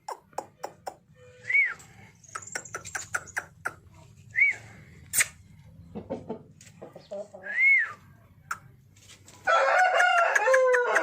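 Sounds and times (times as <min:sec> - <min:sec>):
chickens calling: 0:05.5 - 0:08.0.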